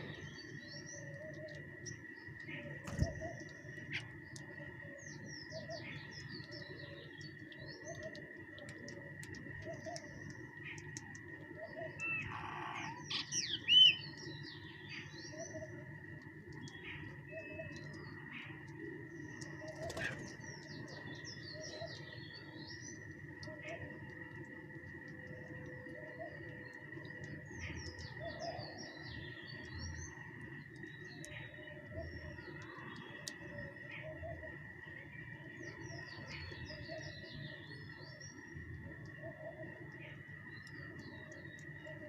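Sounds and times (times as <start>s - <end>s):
small birds chirping: 0.0s - 42.0s
steady high-pitched hum: 0.0s - 42.0s.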